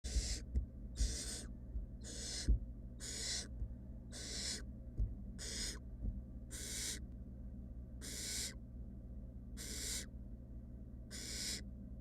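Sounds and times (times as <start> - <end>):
owl chicks hissing calls: 0.0 - 3.5, 4.1 - 4.7, 5.4 - 5.8, 6.5 - 7.0, 8.0 - 8.6, 9.6 - 10.1, 11.1 - 11.6
soft low thumps: 0.1 - 4.0, 4.8 - 6.4.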